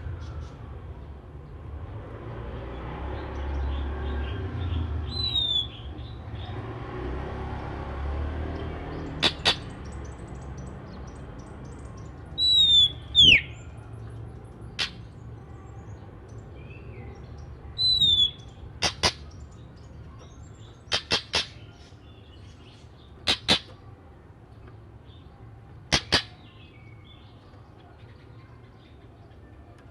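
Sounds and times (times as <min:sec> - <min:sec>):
bird singing whistled notes: 0:05.0 - 0:06.2, 0:11.6 - 0:13.8, 0:17.8 - 0:18.6
sharp short bird clicks: 0:09.1 - 0:10.7, 0:14.7 - 0:15.1, 0:18.1 - 0:19.5, 0:20.8 - 0:21.9, 0:23.2 - 0:23.8, 0:25.9 - 0:26.5.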